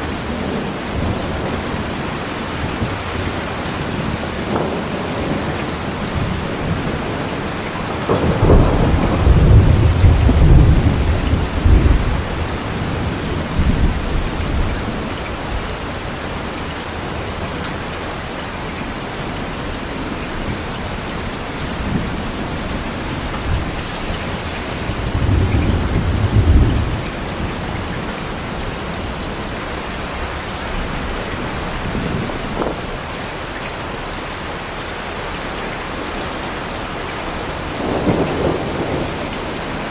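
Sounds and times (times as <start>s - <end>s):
heavy rain: 0.0s - 39.9s
rolling thunder: 0.4s - 16.0s, 20.4s - 33.3s, 37.6s - 39.9s.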